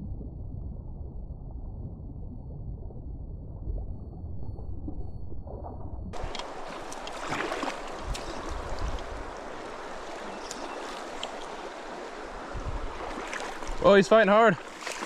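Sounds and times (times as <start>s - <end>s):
creek water flowing: 6.2s - 15.0s
faint clicks: 10.4s - 11.5s.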